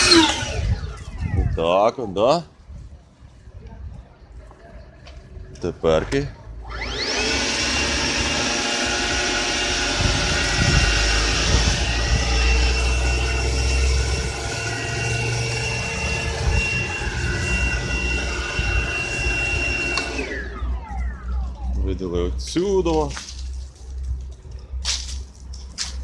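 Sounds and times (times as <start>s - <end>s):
leaf blower electric whine: 0.0s - 0.8s, 6.6s - 21.2s.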